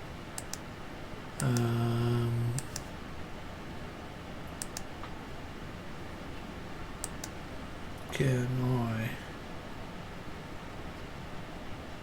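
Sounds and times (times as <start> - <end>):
computer clicks: 0.4 - 0.7, 1.4 - 2.9, 4.6 - 4.9, 7.0 - 7.4
man humming: 1.4 - 2.9, 8.1 - 9.3.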